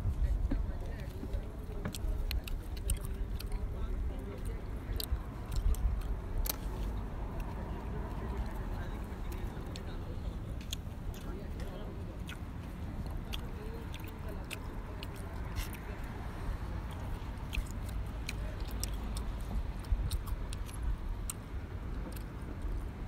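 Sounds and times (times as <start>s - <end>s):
low background rumble: 0.0s - 23.0s
person chewing meat: 1.0s - 10.0s, 10.6s - 23.0s
sharp mouth clicks: 1.8s - 3.8s, 4.4s - 7.6s, 10.6s - 16.2s, 16.8s - 22.9s.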